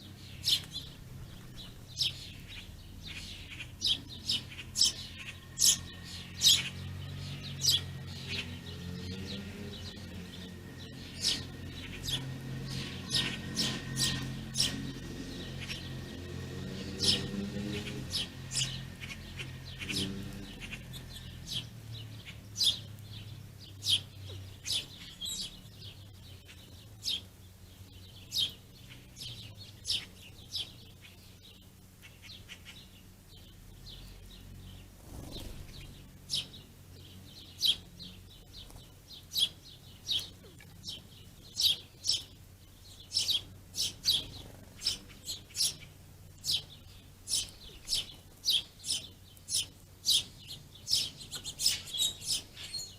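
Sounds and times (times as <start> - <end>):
small songbirds chirping: 0.0 - 52.9.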